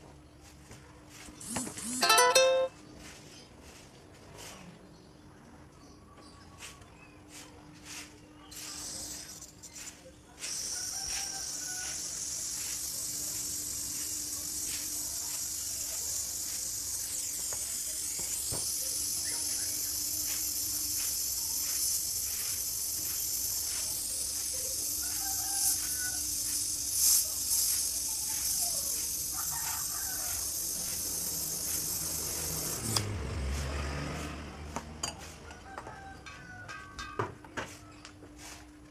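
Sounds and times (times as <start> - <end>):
hiss of air through pipe: 8.5 - 33.7
refrigerator compressor humming: 10.3 - 33.0.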